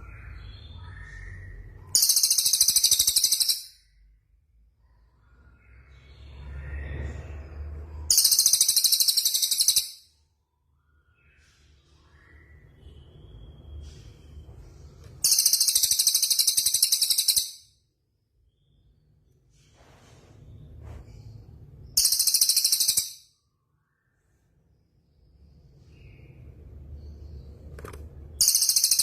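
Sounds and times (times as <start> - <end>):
songbird fast high trill: 15.2 - 17.6, 22.0 - 23.2.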